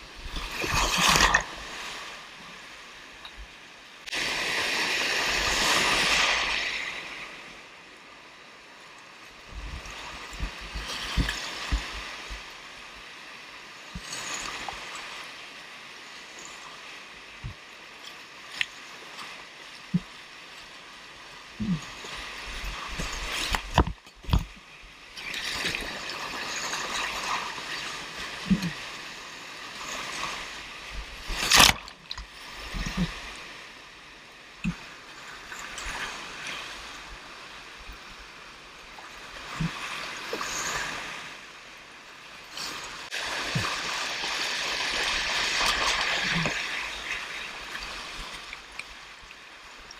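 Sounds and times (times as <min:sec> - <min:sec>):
whitewater rushing: 0:43.0 - 0:48.6.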